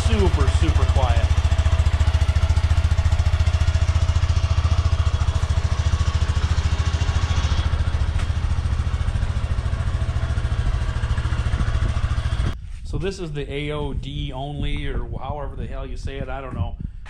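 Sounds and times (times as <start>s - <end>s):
motorcycle engine idling: 0.0s - 12.6s.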